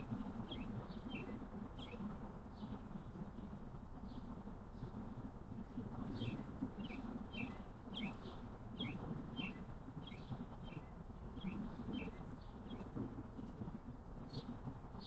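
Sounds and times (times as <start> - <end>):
low outdoor rumble: 0.0 - 15.0
songbird chirping: 6.2 - 12.9.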